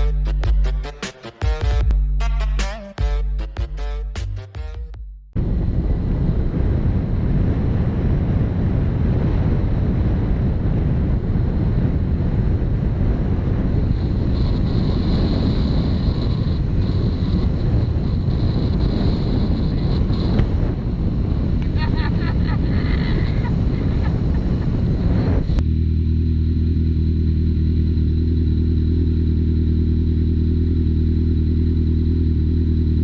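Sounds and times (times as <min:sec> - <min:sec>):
wind buffeting microphone: 0:05.4 - 0:25.6.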